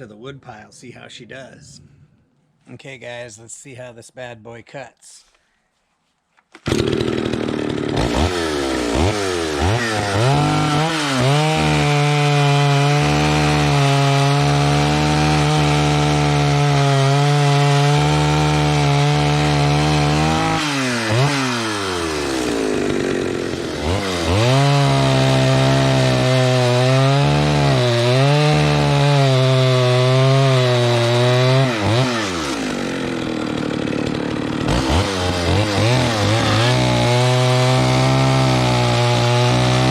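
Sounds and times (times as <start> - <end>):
chainsaw revving and cutting wood: 6.6 - 39.9.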